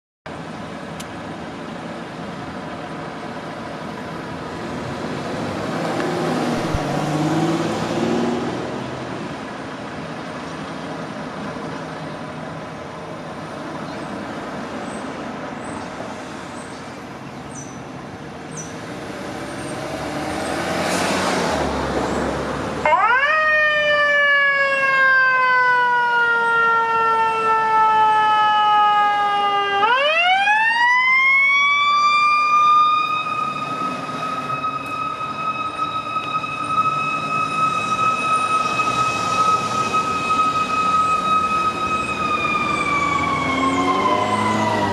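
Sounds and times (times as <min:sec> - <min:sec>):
street traffic: 0:00.3 - 0:44.9
fire engine mechanical siren: 0:22.8 - 0:44.9.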